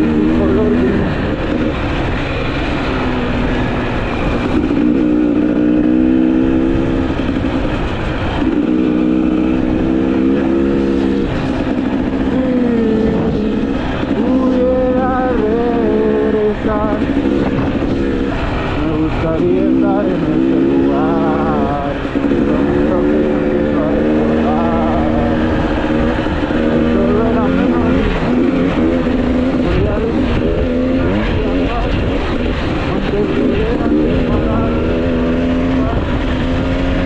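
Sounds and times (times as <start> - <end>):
two-stroke motorcycle engine running: 0.0 - 37.0.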